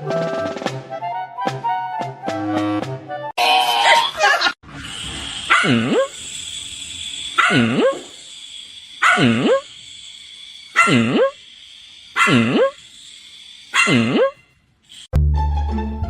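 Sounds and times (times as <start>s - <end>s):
dog barking: 5.5s - 6.1s, 7.4s - 8.0s, 9.0s - 9.6s, 10.7s - 11.3s, 12.2s - 12.7s, 13.7s - 14.4s.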